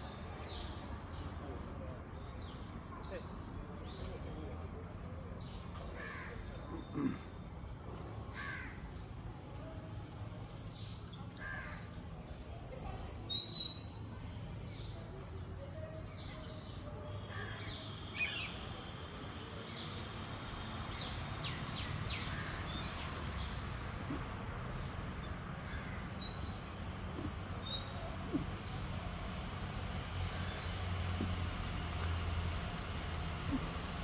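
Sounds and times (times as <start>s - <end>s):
wild birds chirping: 3.1s - 34.0s
steady low hum: 20.0s - 34.0s.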